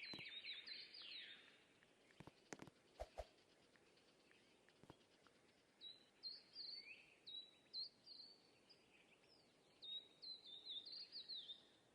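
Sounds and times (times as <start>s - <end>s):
bird chirping: 0.0s - 3.4s.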